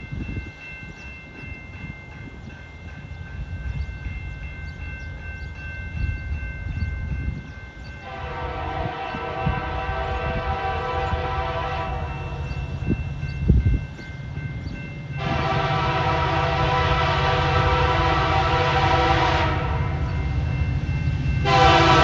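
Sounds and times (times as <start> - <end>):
crossing warning bell ringing: 0.0 - 22.0
locomotive air horn: 8.0 - 12.4, 15.2 - 20.1, 21.4 - 22.0.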